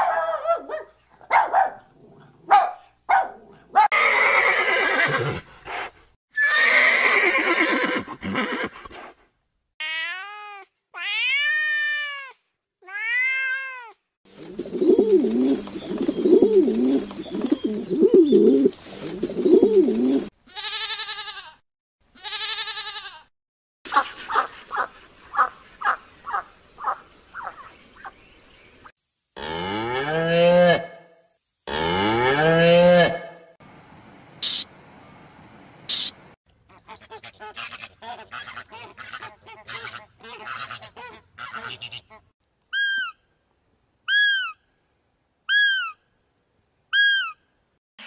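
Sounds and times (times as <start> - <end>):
cat meows: 9.8 - 14.0.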